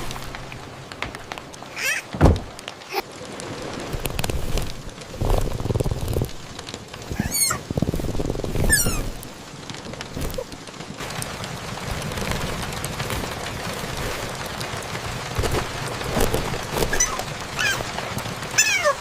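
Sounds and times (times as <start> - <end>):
rain falling: 0.0 - 19.0
high falling squeaks: 7.1 - 7.7, 8.6 - 9.1, 16.8 - 17.8, 18.6 - 19.0.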